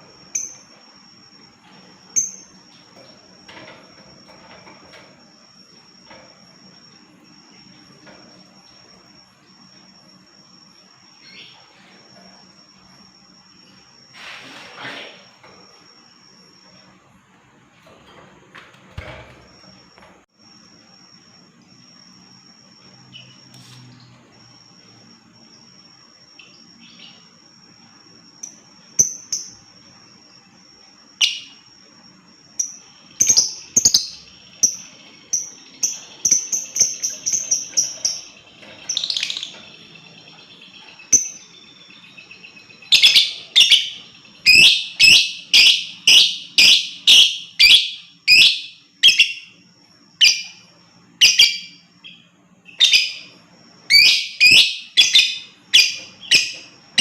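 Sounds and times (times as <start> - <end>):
lovebird chirping: 32.6 - 49.6, 51.2 - 57.0.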